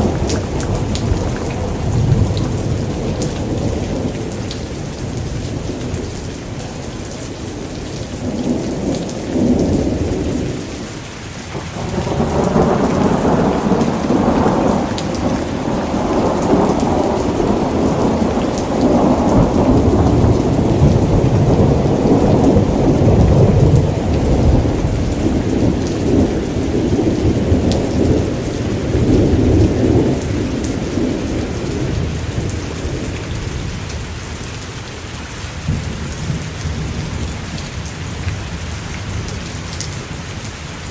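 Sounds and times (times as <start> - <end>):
rolling thunder: 0.0 - 6.8, 11.6 - 34.0
steady rain: 0.0 - 40.9.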